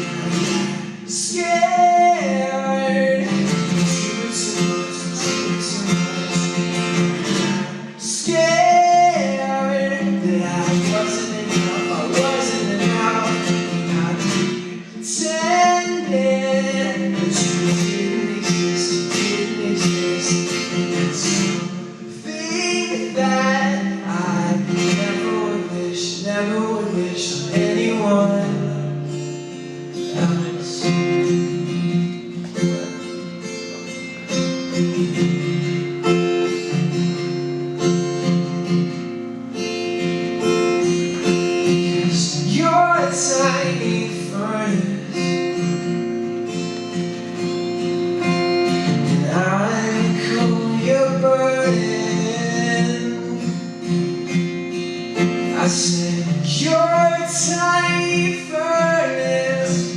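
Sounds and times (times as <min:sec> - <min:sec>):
person singing: 0:00.0 - 0:29.2, 0:41.0 - 0:45.6, 0:48.8 - 0:53.6, 0:55.5 - 0:59.9
strummed acoustic guitar: 0:00.0 - 0:59.9.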